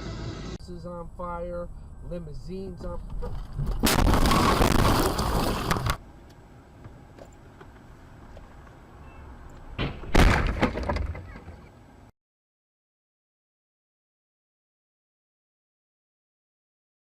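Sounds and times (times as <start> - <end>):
faint steady hum: 0.0 - 3.3
loud impact: 3.7 - 5.4, 9.8 - 11.0.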